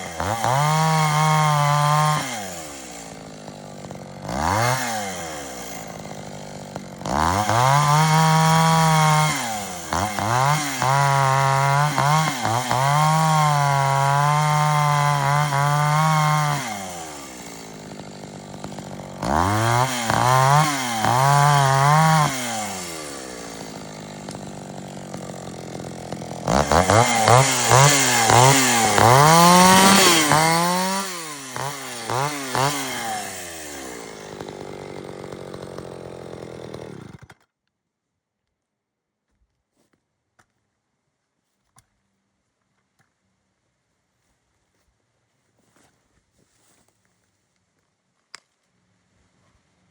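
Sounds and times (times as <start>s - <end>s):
chainsaw revving and idling: 0.0s - 37.5s.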